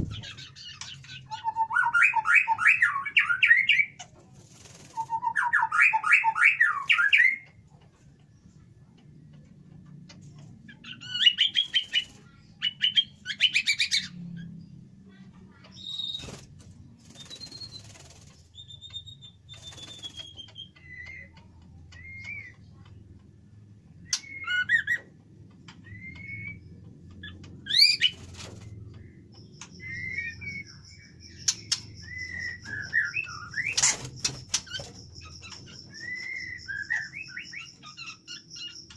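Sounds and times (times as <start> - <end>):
songbirds chattering and whistling: 0.0 - 38.9.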